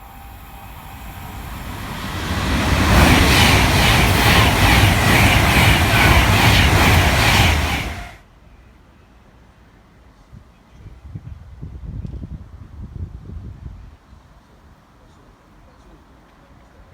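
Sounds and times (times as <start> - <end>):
train passing at speed: 0.0 - 8.2
rhythmic wheel clatter: 0.1 - 8.2.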